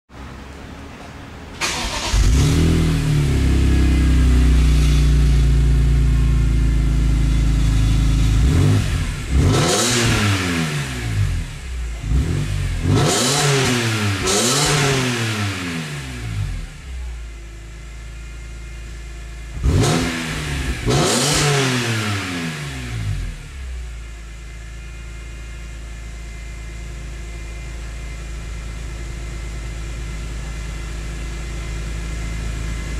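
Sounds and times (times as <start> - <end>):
car engine idling and revving: 0.1 - 32.9.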